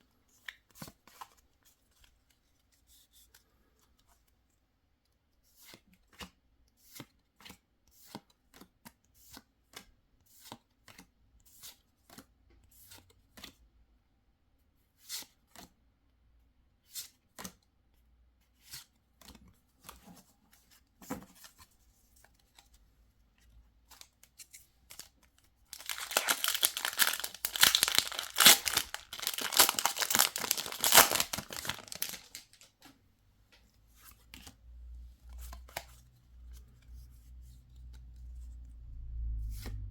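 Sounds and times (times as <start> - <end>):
foil wrapper tearing and crinkling: 25.7 - 32.6.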